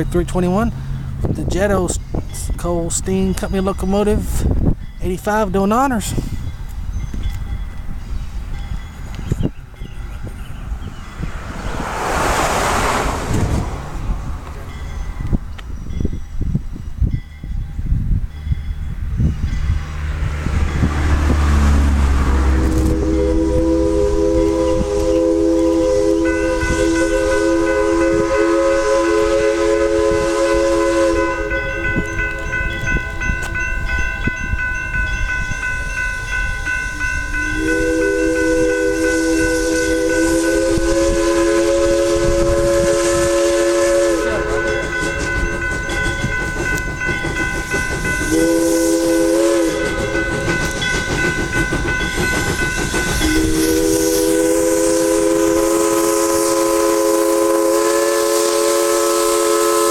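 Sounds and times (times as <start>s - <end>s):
train rumble and wheel clatter: 0.0s - 59.9s
steam locomotive chime whistle: 14.4s - 59.9s.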